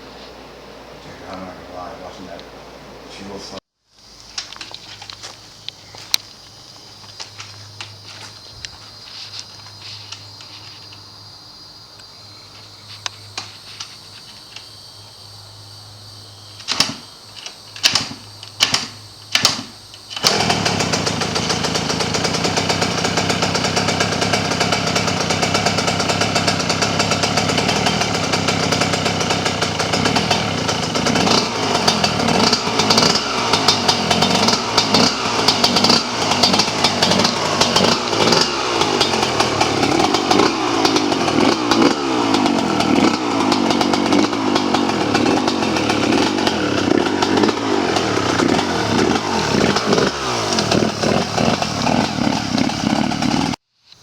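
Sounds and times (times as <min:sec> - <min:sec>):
two-stroke engine starting and revving: 0:17.8 - 0:53.6.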